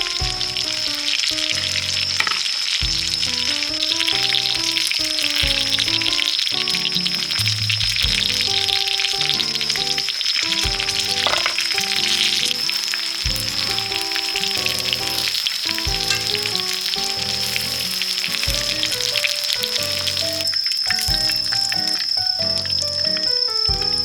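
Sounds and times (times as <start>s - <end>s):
food sizzling in oil: 0.0s - 24.0s
background music with bass pulse: 2.8s - 4.8s, 7.4s - 8.8s, 13.3s - 14.0s, 23.7s - 24.0s.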